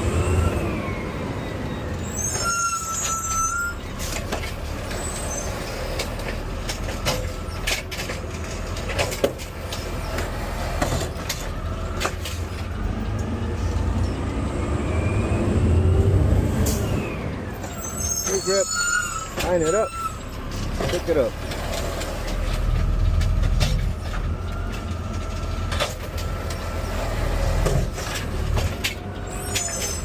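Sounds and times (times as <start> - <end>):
high squeal: 0.0 - 4.2, 4.9 - 6.0, 14.0 - 20.6, 29.2 - 30.0.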